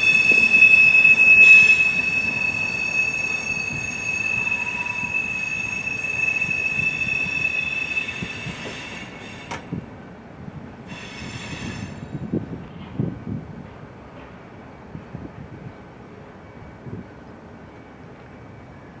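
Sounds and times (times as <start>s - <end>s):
train wheels squealing: 0.0s - 9.8s, 10.9s - 12.3s.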